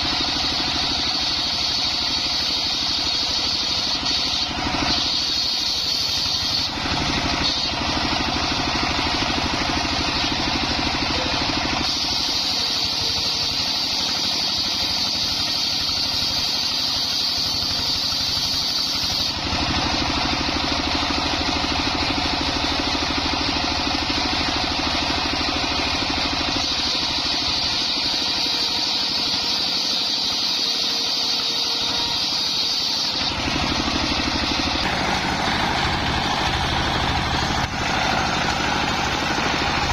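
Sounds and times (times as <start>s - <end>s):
circular saw engine running: 0.0s - 39.9s
saw blade whining through wood: 0.0s - 39.9s.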